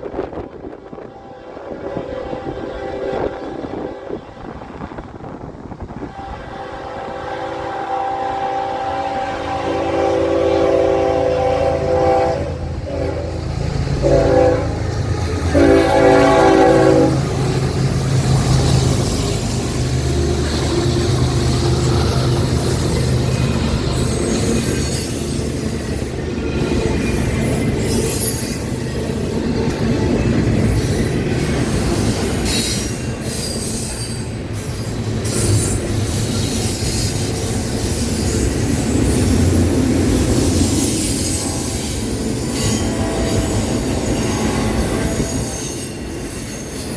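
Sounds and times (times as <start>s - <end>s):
diesel locomotives rumbling past: 0.0s - 46.9s
locomotive horn blasts: 6.0s - 17.4s
rail clatter: 12.0s - 46.9s
train wheels squealing: 17.3s - 46.9s.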